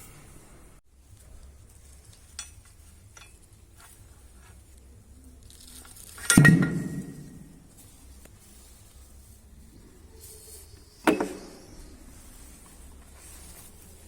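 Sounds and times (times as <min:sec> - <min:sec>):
metal parts clicking: 0:01.4 - 0:04.0, 0:05.4 - 0:07.0
loud metallic clank: 0:06.2 - 0:07.6.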